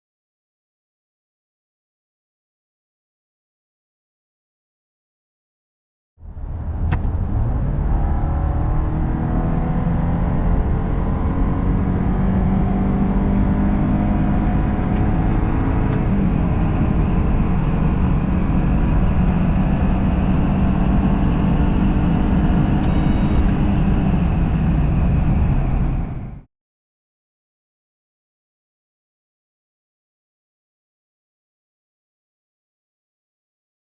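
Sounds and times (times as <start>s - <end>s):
car engine accelerating: 6.2s - 26.4s
road and wind rumble: 6.2s - 26.5s.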